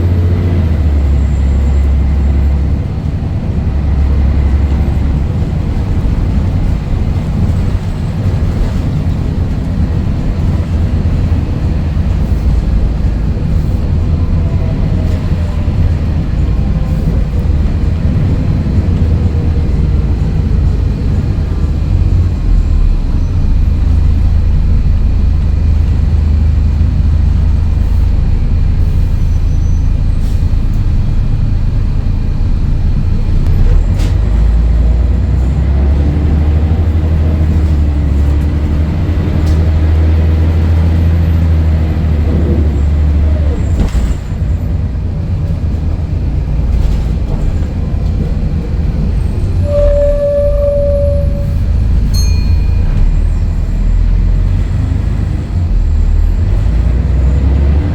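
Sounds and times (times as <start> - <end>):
bus diesel engine droning: 0.0 - 57.9
short beep: 49.6 - 53.8.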